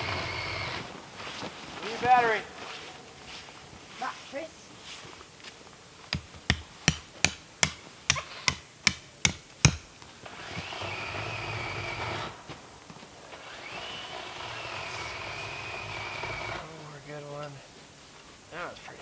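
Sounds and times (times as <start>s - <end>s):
cordless drill whining: 0.0s - 0.9s, 10.3s - 12.3s, 13.3s - 16.7s
hammer blows: 6.1s - 10.0s.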